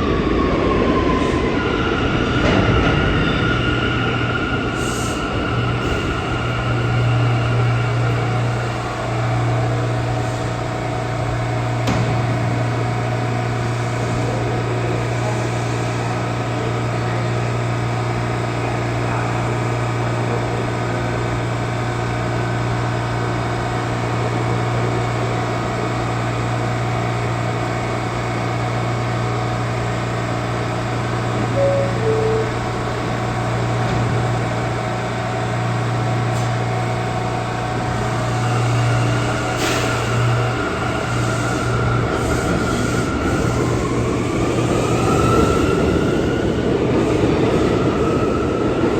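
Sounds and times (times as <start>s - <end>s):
subway train humming: 0.0s - 48.9s
two-note door-closing chime: 31.5s - 33.0s.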